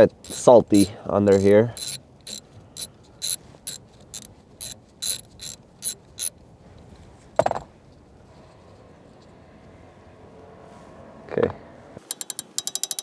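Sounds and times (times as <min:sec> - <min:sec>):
ratchet wrench clicking: 0:00.1 - 0:06.3, 0:12.0 - 0:13.0
metallic clank: 0:12.0 - 0:13.0.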